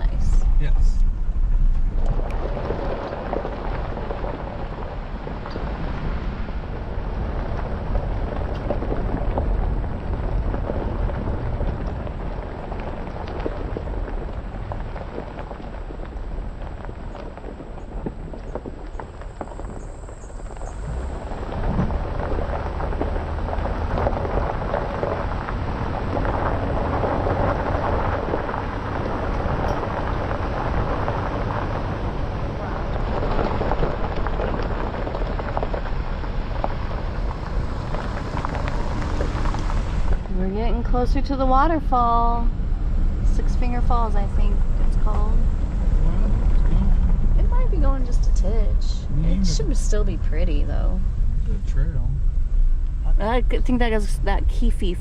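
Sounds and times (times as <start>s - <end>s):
gravel ticking under tyres: 0.0s - 55.0s
low engine rumble: 0.0s - 55.0s
road and drivetrain noise: 0.0s - 55.0s
fine crackle: 1.2s - 41.3s.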